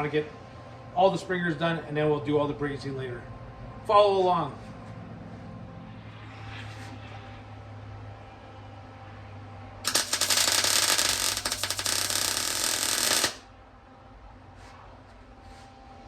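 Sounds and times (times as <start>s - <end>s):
welding arc crackle: 9.9s - 13.5s.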